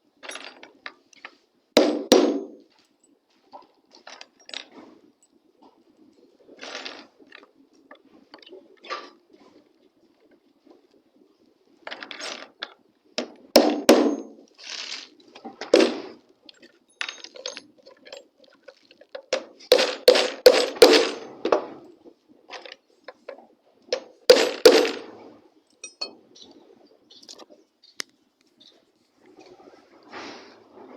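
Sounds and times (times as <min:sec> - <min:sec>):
hammer striking nails: 0:01.8 - 0:02.6, 0:13.6 - 0:14.4, 0:19.7 - 0:21.2, 0:24.0 - 0:25.0.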